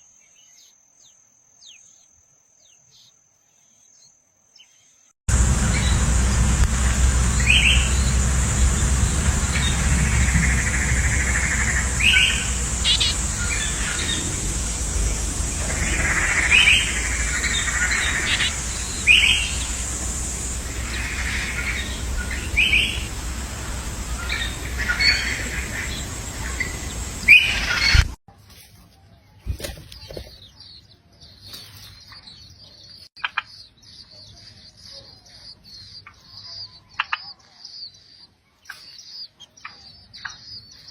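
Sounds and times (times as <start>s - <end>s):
birds chirping: 0.0s - 28.2s, 29.2s - 40.9s
outdoor noise: 0.0s - 40.9s
constant high whine: 5.3s - 28.2s
high-pitched bird twittering: 9.5s - 28.1s.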